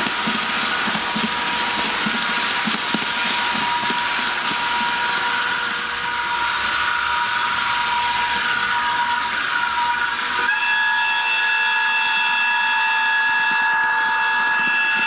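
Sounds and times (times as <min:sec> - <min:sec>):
steady electronic whine: 0:00.0 - 0:15.0
model locomotive horn blast: 0:03.2 - 0:15.0.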